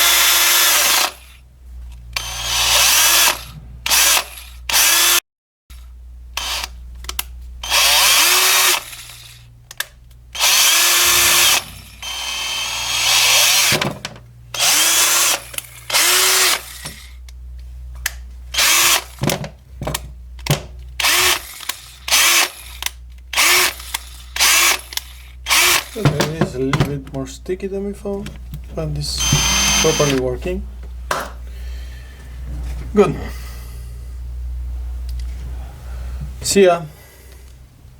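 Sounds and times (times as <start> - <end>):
cordless drill motor bursts: 0.0 - 1.4, 2.2 - 5.2, 6.4 - 6.8, 7.6 - 9.5, 10.4 - 17.2, 18.5 - 19.2, 21.0 - 26.1, 29.1 - 30.3.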